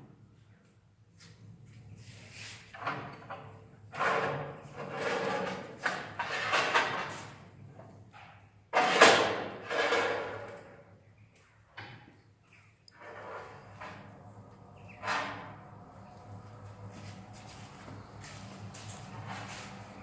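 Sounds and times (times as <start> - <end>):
metal fireplace insert scraping: 3.9 - 7.4, 8.8 - 10.7, 13.0 - 20.0.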